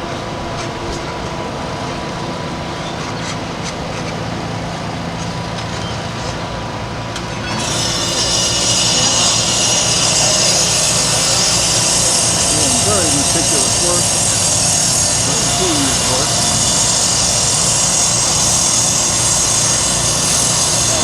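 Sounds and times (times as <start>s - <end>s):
heavy machinery running: 6.9s - 21.0s
loud steady hiss: 7.7s - 21.0s.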